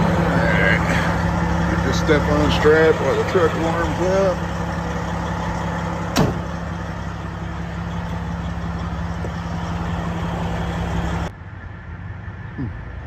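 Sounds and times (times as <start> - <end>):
diesel truck engine idling: 0.0 - 11.3.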